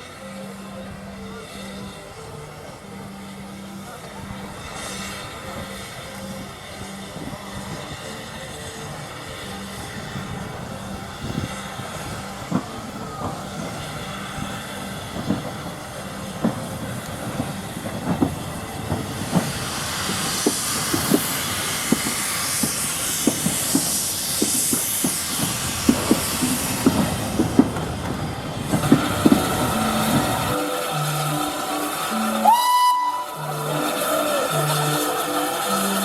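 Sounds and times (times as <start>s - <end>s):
hiss of steam: 0.0s - 36.0s
steam train running past: 0.0s - 36.0s
wheels clicking over rail joints: 0.0s - 36.0s.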